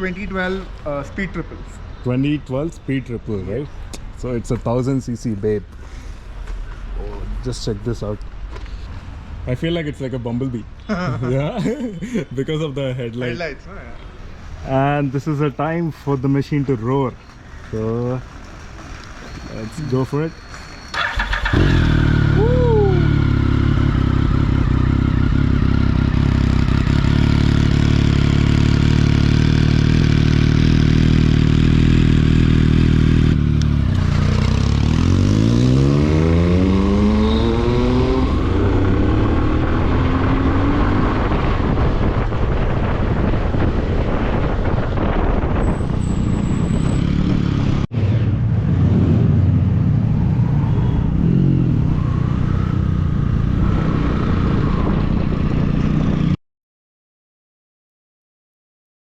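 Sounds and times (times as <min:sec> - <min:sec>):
motorcycle engine revving: 0:20.9 - 0:44.4, 0:45.6 - 0:56.4
person cheering: 0:22.2 - 0:23.3.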